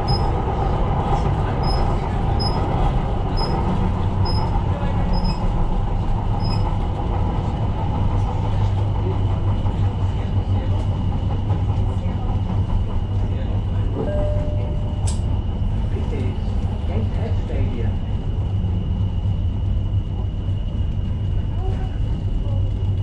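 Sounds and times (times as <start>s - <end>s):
train rumble of motors and wheels: 0.0s - 23.0s
brief click: 15.0s - 15.2s.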